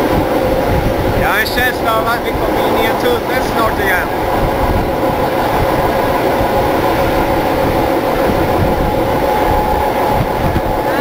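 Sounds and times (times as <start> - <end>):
train carriage rumbling on track: 0.0 - 11.0.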